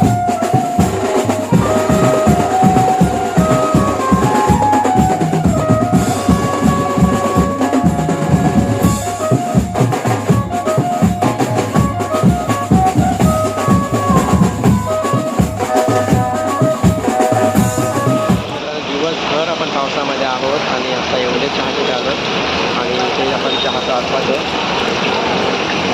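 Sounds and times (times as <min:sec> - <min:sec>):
fast dense drumming: 0:00.0 - 0:18.6
band melodic line: 0:00.0 - 0:19.5.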